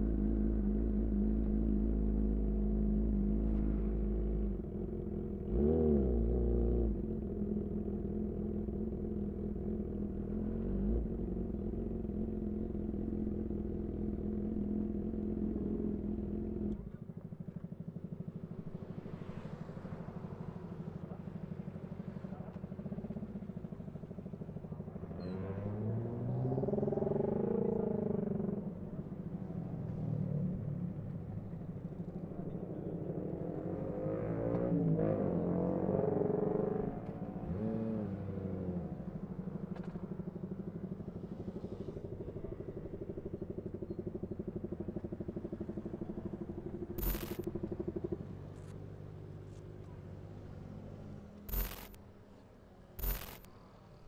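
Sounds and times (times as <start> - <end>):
motorcycle engine revving: 25.3 - 30.6, 31.5 - 48.7, 50.5 - 52.0, 53.0 - 53.5.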